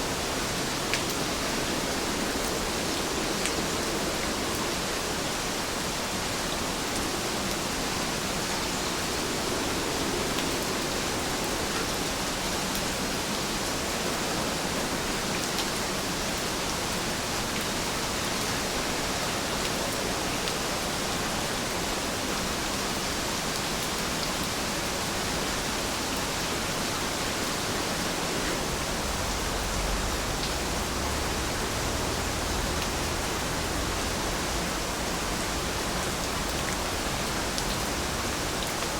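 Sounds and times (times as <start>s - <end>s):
steady rain falling: 0.0s - 38.9s
faint raindrop ticks: 0.9s - 1.2s.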